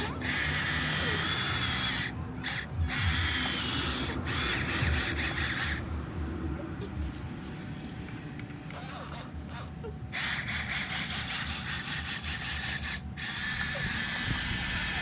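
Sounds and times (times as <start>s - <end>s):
toy truck motor whining: 0.0s - 5.8s, 10.1s - 15.0s.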